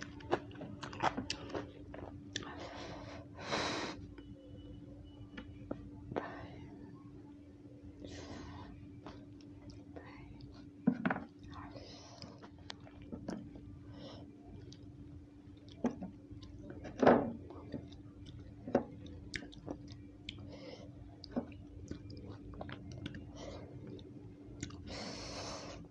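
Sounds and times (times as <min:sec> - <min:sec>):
chewing raw vegetables: 0:00.0 - 0:02.6, 0:09.0 - 0:13.7, 0:14.5 - 0:25.0
faint steady hum: 0:00.0 - 0:25.9.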